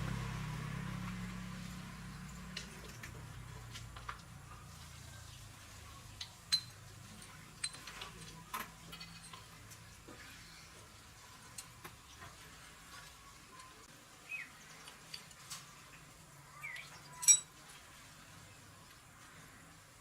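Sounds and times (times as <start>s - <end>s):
ringing metal clink: 6.5s - 6.8s, 17.1s - 17.5s.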